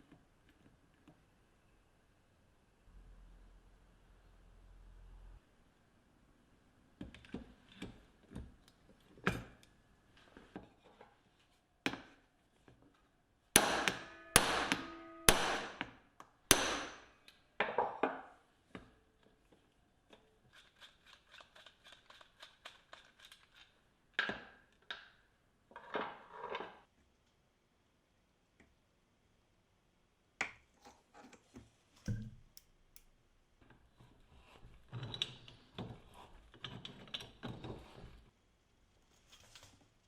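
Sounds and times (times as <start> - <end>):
hammer blows on metal: 13.6 - 15.9, 16.5 - 17.1.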